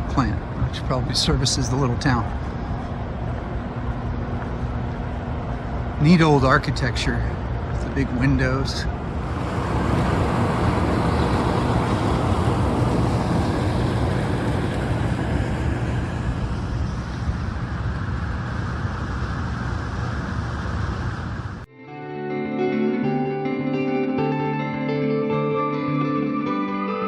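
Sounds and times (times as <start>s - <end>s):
hydroelectric plant rushing rumble: 8.2s - 21.7s.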